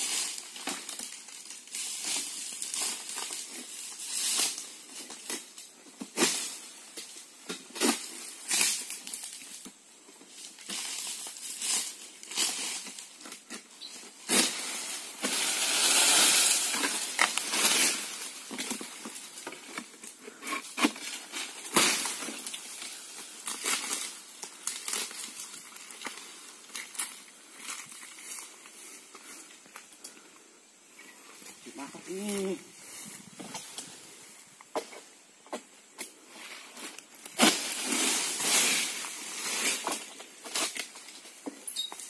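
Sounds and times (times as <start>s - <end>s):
palm fronds rustling and cracking: 0.0s - 42.0s
crashing rustle of fronds: 10.3s - 19.9s, 36.3s - 41.5s.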